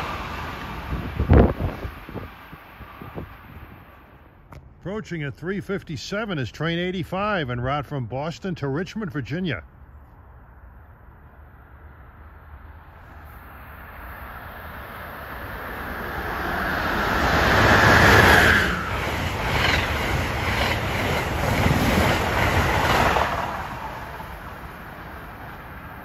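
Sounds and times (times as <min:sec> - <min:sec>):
train passing with rushing noise: 0:00.0 - 0:04.8, 0:10.3 - 0:26.0.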